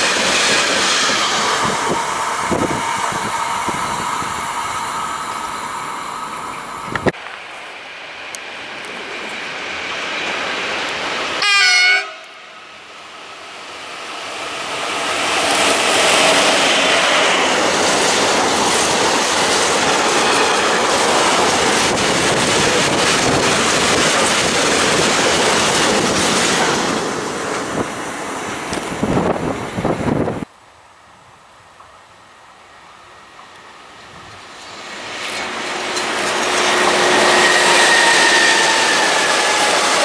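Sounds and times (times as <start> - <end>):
train rumble: 0.0 - 30.5, 33.3 - 40.0
locomotive horn blast: 11.4 - 12.6
wheels clacking over rail joints: 14.9 - 27.9, 34.5 - 40.0.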